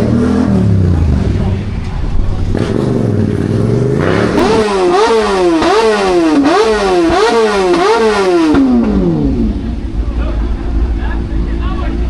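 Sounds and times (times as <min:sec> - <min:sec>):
engine revving hard: 0:00.0 - 0:01.6, 0:02.4 - 0:09.8.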